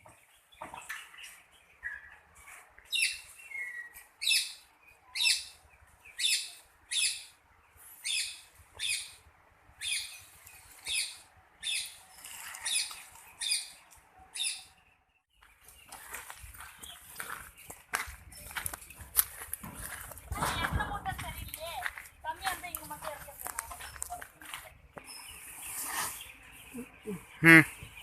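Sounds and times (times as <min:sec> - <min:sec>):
bird calling: 0:25.0 - 0:28.0.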